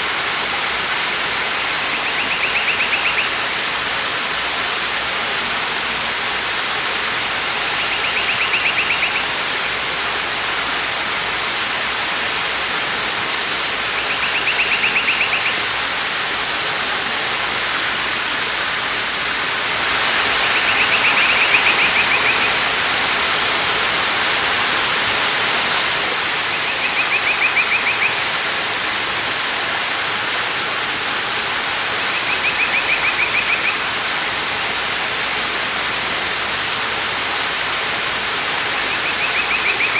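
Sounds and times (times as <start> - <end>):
waterfall rushing: 0.0 - 39.9
bird rapid trill: 14.1 - 15.6.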